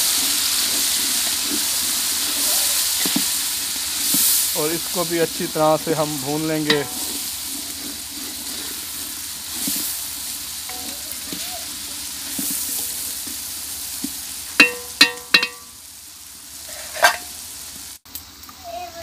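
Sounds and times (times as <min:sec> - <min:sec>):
food sizzling in a pot: 0:00.0 - 0:19.0
wooden spatula scraping pot: 0:05.9 - 0:09.9.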